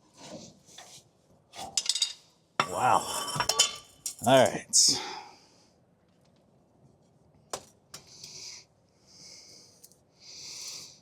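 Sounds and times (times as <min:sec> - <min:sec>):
faint hissing breaths: 0:04.8 - 0:05.9, 0:08.0 - 0:11.0.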